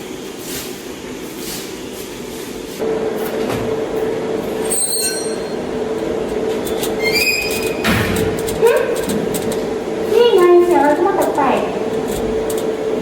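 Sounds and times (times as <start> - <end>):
high screeches: 4.6 - 5.6
metallic squeal: 4.6 - 5.6, 6.8 - 7.9.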